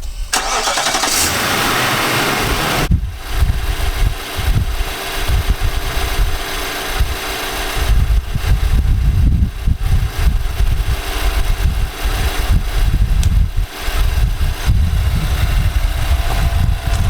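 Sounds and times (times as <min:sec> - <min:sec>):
engine idling: 0:00.1 - 0:17.0
uneven low engine knocking: 0:14.2 - 0:17.0.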